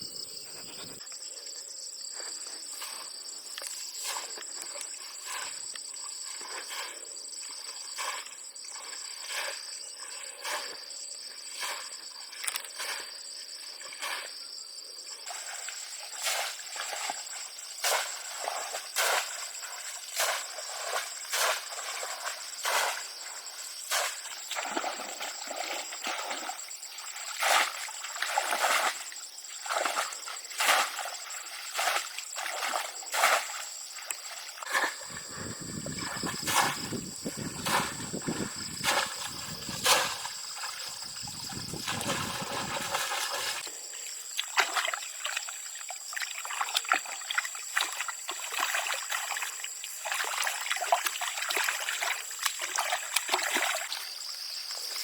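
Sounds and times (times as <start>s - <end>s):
wet sloshing strokes: 15.3s - 43.7s.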